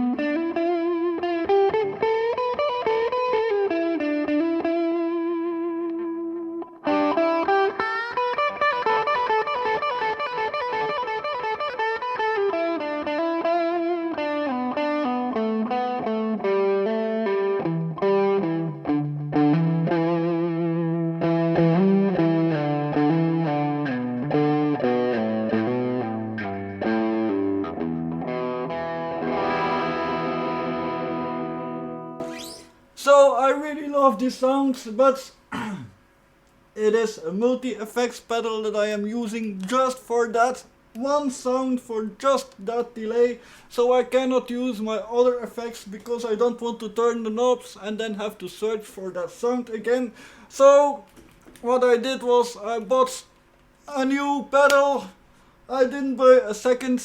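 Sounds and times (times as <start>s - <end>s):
overdriven electric guitar: 0.0s - 32.9s.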